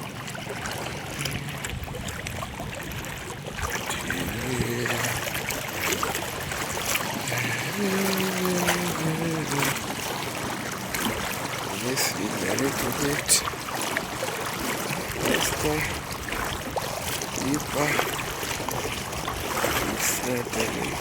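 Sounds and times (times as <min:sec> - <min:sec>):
river water rushing: 0:00.0 - 0:21.0
small splashes: 0:00.0 - 0:21.0
person humming: 0:04.0 - 0:05.3, 0:07.2 - 0:09.8.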